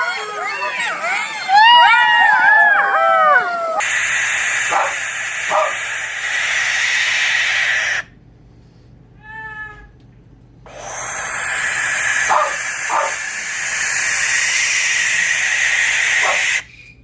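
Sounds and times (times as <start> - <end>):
steady hiss: 3.8 - 8.1, 11.0 - 17.0
wild animal cries: 10.8 - 16.6.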